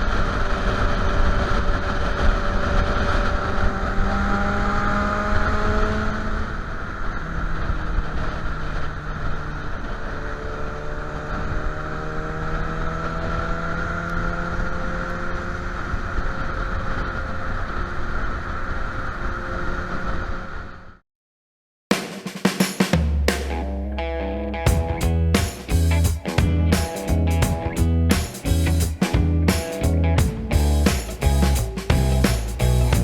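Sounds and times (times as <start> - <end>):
motorcycle engine cruising: 24.7 - 33.0.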